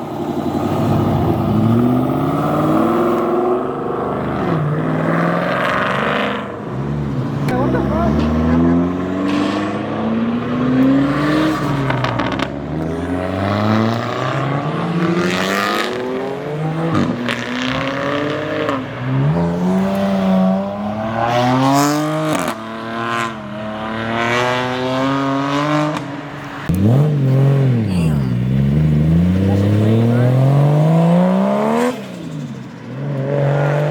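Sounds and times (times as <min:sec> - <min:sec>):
sports car engines revving: 0:00.0 - 0:33.9.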